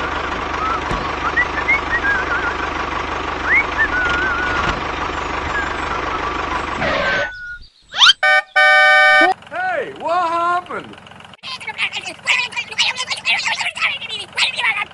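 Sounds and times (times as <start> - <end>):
tractor-like engine running: 0.0 - 7.4, 8.0 - 14.9
high chirping whistles: 0.6 - 2.7, 3.4 - 4.7, 5.5 - 9.3
horn-like toot: 8.0 - 9.4.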